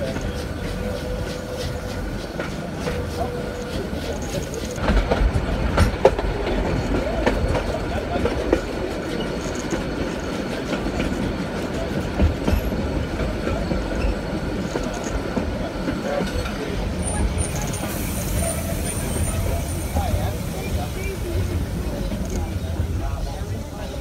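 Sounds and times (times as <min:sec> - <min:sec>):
wheels and couplings knocking: 0:00.0 - 0:16.7
train carriages rumbling on track: 0:00.0 - 0:24.0.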